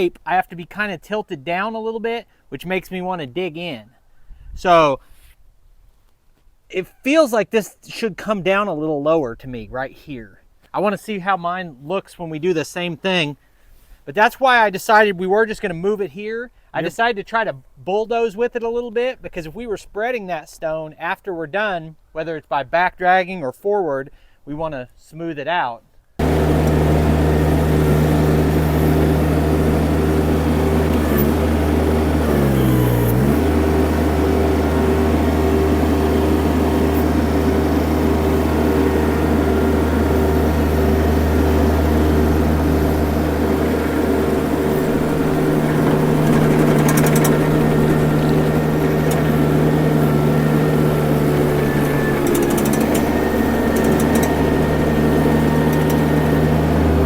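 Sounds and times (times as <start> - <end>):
skid steer engine running: 26.2 - 57.0.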